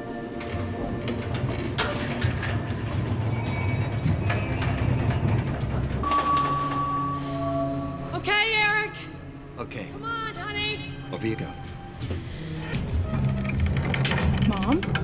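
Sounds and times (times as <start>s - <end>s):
sharp clicks and knocks: 13.4s - 15.0s.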